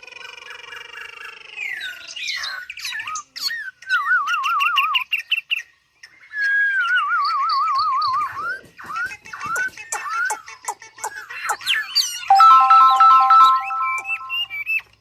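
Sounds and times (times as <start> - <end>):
bird singing whistled phrases: 3.7 - 5.2, 6.3 - 8.4.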